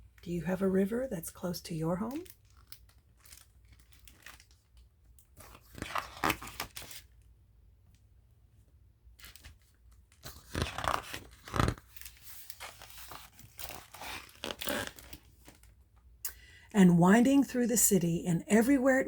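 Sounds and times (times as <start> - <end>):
paper pages rustling: 2.2 - 7.2, 9.2 - 15.8.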